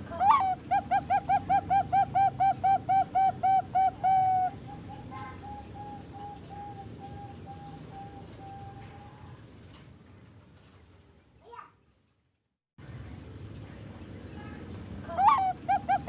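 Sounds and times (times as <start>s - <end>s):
dove cooing: 0.0s - 9.4s, 15.1s - 16.0s.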